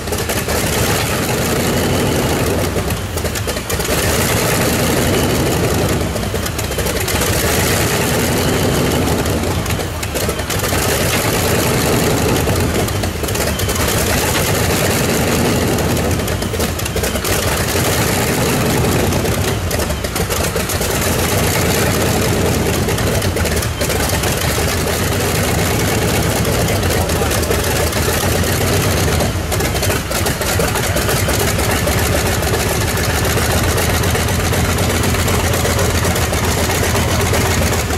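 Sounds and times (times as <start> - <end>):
tractor-pulling engine running: 0.0 - 37.9.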